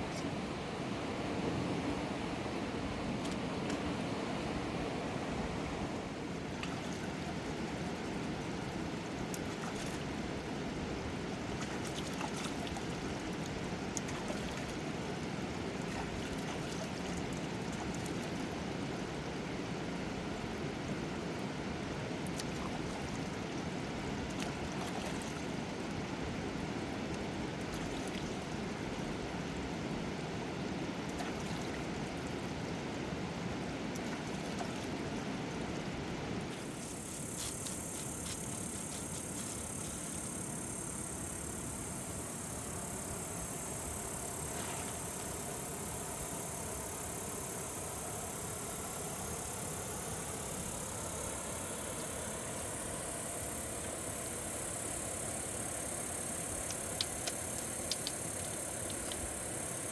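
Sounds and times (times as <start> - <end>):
faint clicks: 56.6 - 59.3.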